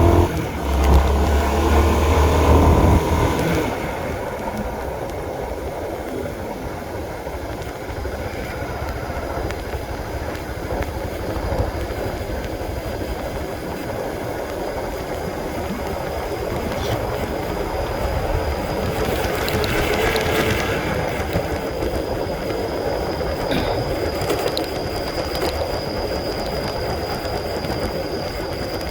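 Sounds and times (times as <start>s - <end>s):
motorcycle engine running: 0.0s - 22.4s
road and wind noise: 0.0s - 28.9s.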